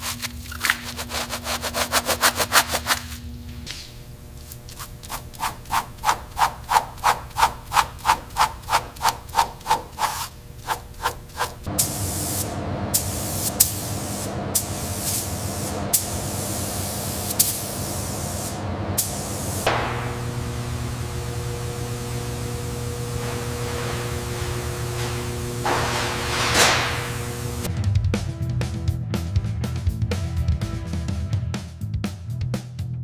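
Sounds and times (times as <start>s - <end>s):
hand sanding strokes: 0.0s - 3.2s, 4.6s - 11.7s, 22.6s - 27.7s.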